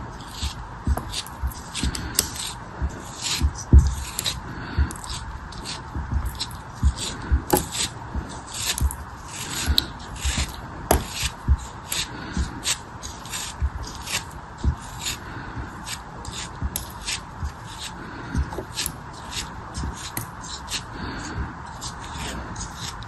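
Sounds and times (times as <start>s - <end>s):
dull low thumps: 0.0s - 15.8s
crunching and scraping material: 0.0s - 23.0s.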